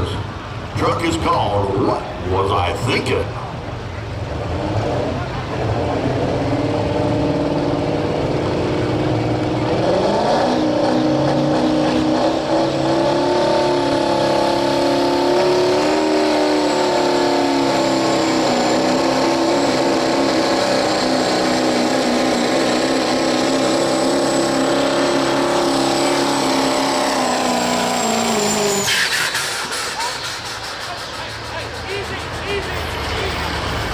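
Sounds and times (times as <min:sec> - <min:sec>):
diesel truck engine running flat out: 0:03.4 - 0:33.9
high turbo whistle: 0:24.0 - 0:33.9.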